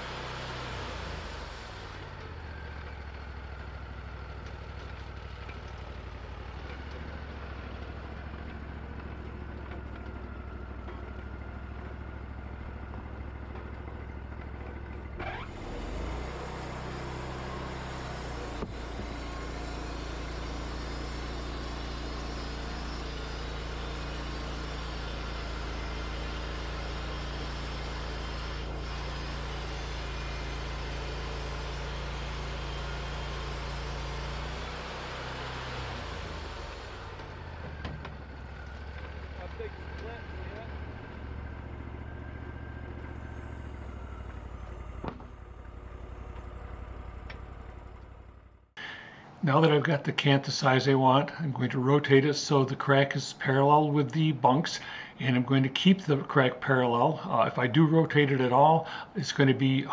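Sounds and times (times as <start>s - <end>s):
band blade sawing wood: 0.0s - 2.2s, 15.2s - 37.5s
sawmill engine running: 0.0s - 59.9s.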